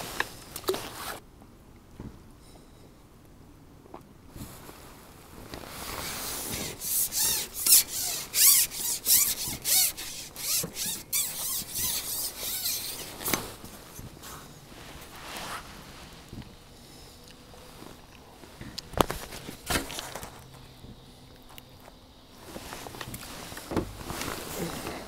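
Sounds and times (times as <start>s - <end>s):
quick rubbing strokes: 5.6s - 16.2s.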